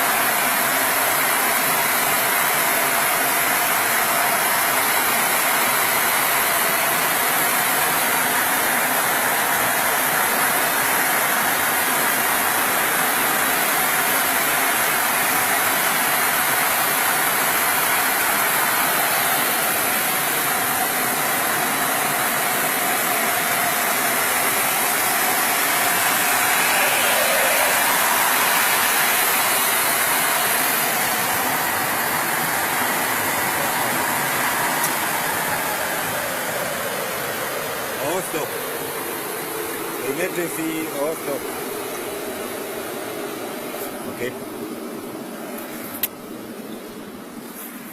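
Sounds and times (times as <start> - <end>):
washing machine running: 0.0 - 40.4
spraying water: 10.1 - 38.4.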